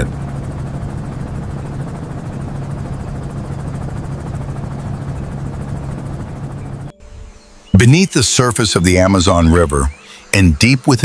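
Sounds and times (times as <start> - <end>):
aircraft engine drone: 0.0 - 11.0.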